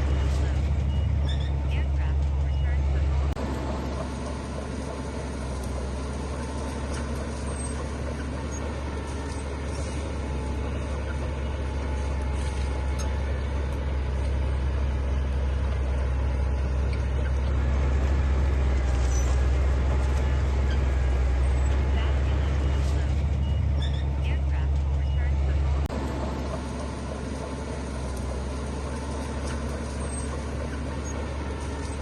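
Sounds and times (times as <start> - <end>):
deep diesel engine rumble: 0.0 - 32.0.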